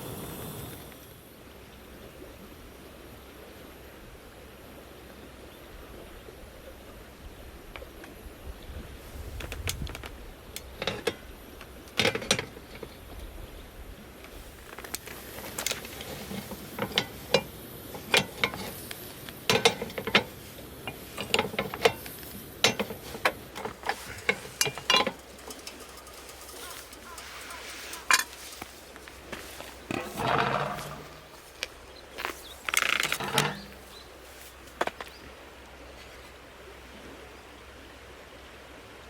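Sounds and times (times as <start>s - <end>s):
hard objects clicking: 14.8s - 31.8s.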